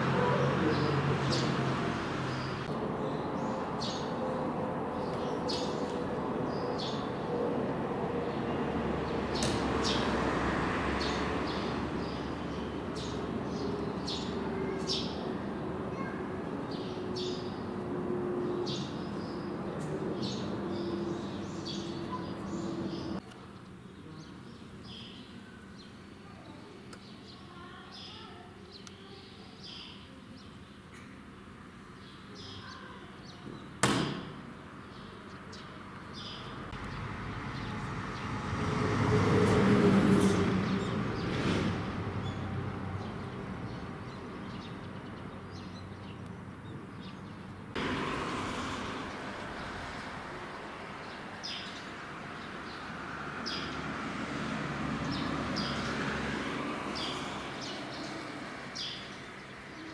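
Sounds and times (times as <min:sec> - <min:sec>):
small birds chirping: 0:11.0 - 0:17.8, 0:18.4 - 0:31.2, 0:32.0 - 0:33.8, 0:34.6 - 0:38.3, 0:42.2 - 0:47.8, 0:48.9 - 0:54.0, 0:55.0 - 0:59.9
sharp knock: 0:33.8 - 0:34.4.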